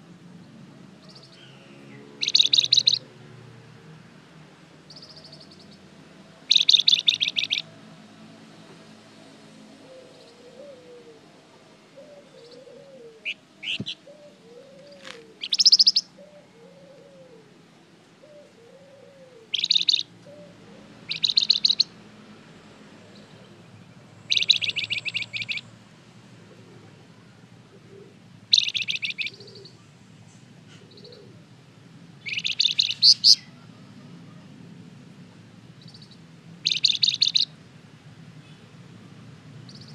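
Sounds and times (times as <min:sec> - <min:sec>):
songbird high rapid trills: 0:01.0 - 0:03.1, 0:06.4 - 0:07.7, 0:15.0 - 0:16.1, 0:19.5 - 0:20.2, 0:20.8 - 0:22.0, 0:23.4 - 0:25.7, 0:28.5 - 0:29.8, 0:32.2 - 0:33.7, 0:35.8 - 0:37.6
lower arched bird notes: 0:01.0 - 0:03.2, 0:06.5 - 0:07.7, 0:12.0 - 0:17.5, 0:18.2 - 0:22.0, 0:23.1 - 0:25.7, 0:27.9 - 0:29.8, 0:32.2 - 0:33.9, 0:35.8 - 0:37.6.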